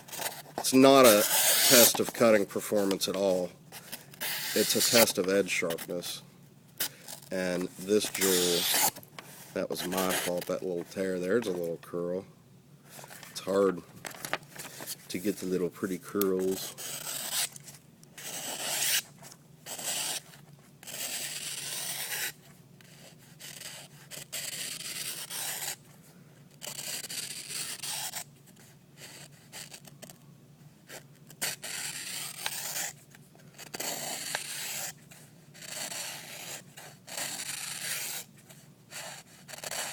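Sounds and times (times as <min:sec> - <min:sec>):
knife blade slicing paper: 0:00.2 - 0:03.4, 0:04.2 - 0:05.3, 0:07.9 - 0:09.0, 0:18.2 - 0:19.0, 0:20.9 - 0:22.3, 0:31.4 - 0:33.0, 0:33.7 - 0:34.9, 0:35.7 - 0:38.3.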